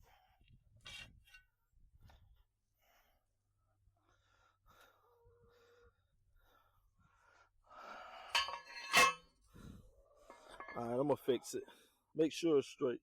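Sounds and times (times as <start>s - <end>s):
sharp metal clanks: 8.3s - 9.2s, 10.3s - 10.9s.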